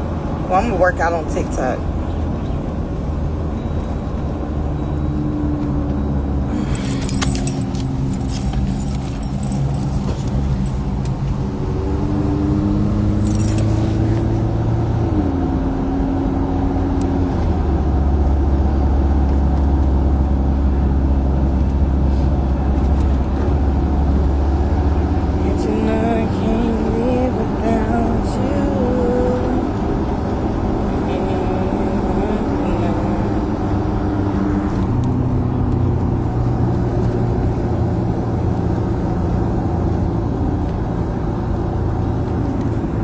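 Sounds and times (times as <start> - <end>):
car engine and road hum: 0.0 - 43.0
short rattles: 6.5 - 11.4, 12.8 - 14.7.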